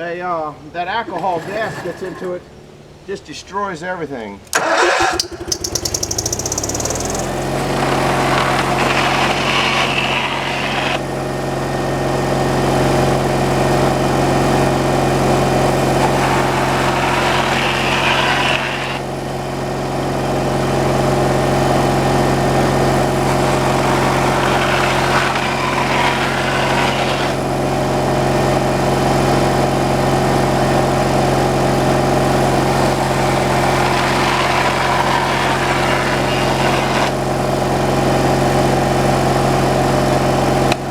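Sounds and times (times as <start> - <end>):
gasoline engine idling: 4.4 - 9.0.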